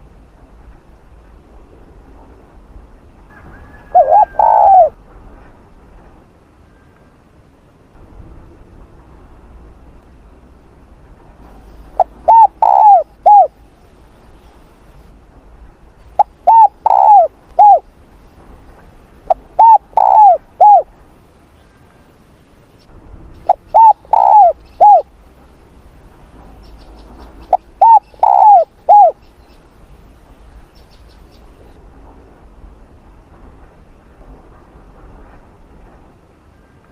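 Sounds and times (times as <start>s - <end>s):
dove cooing: 3.4s - 5.0s, 12.0s - 13.6s, 16.2s - 17.8s, 19.3s - 20.9s, 23.5s - 25.1s, 27.5s - 29.2s.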